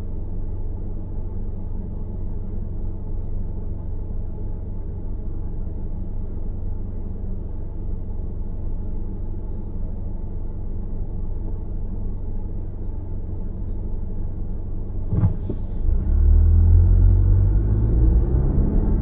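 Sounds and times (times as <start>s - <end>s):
car road rumble: 14.8s - 19.0s.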